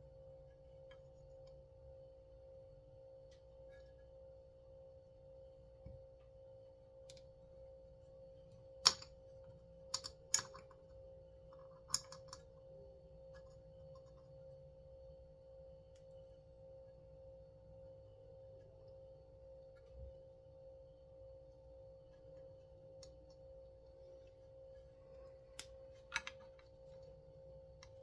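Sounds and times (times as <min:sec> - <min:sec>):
steady high hum: 0:00.0 - 0:28.0
clicks of small parts handled: 0:25.6 - 0:26.8.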